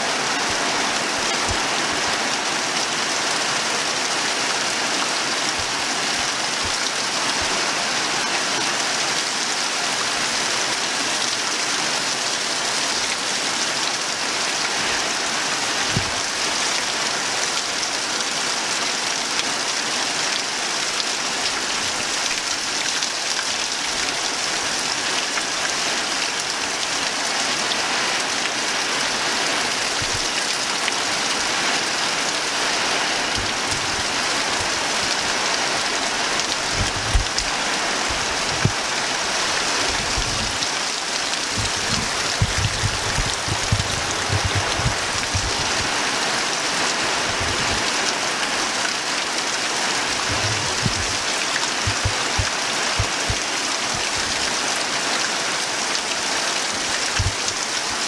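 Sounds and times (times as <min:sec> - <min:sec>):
steady rain falling: 0:00.0 - 0:58.0
short low thumps: 0:36.7 - 0:37.4, 0:39.9 - 0:40.6, 0:41.5 - 0:45.9, 0:50.3 - 0:51.2, 0:51.8 - 0:53.4.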